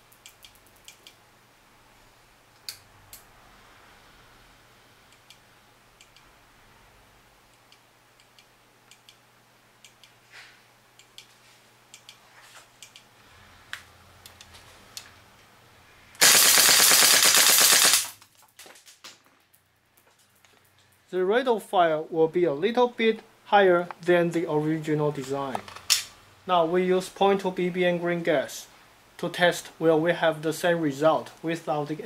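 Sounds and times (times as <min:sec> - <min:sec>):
airsoft rifle full-auto burst: 0:16.2 - 0:18.2.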